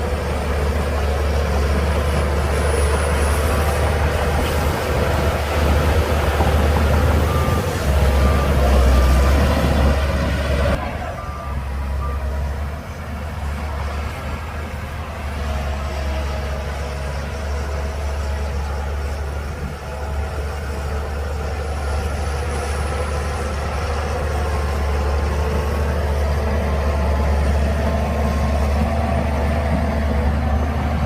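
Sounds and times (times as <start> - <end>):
diesel engine droning: 0.0 - 31.0
reversing alarm beeping: 5.6 - 12.8.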